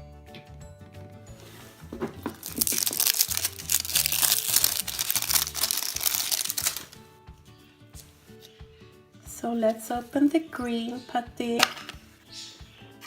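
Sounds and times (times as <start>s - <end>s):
soft background music: 0.0s - 13.0s
crinkly plastic packaging crumpled: 2.2s - 7.0s.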